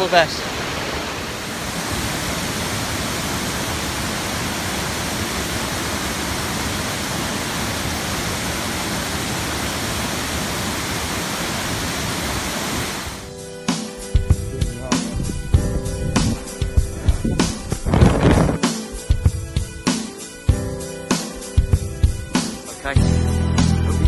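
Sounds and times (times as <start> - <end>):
waterfall rushing: 0.0 - 13.3.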